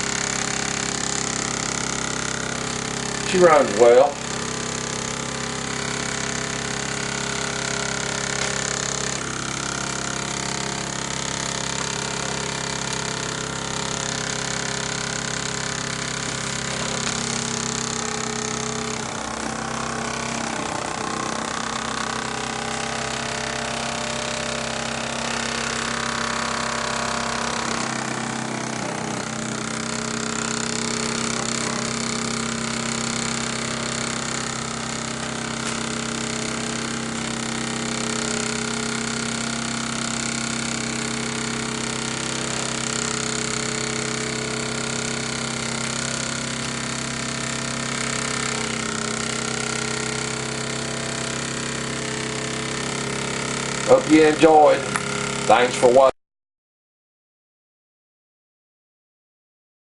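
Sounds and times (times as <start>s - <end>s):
steady hum: 0.0s - 39.4s, 47.9s - 56.1s
steam engine running: 0.0s - 56.1s.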